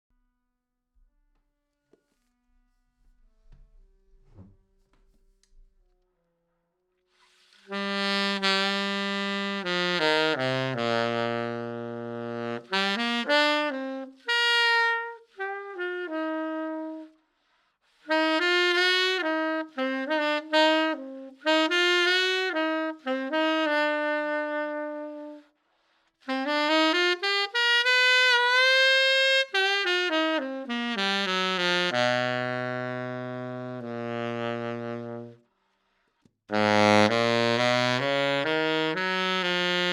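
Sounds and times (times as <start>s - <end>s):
saxophone playing: 7.3s - 17.2s, 18.0s - 25.5s, 26.2s - 35.5s, 36.5s - 39.9s.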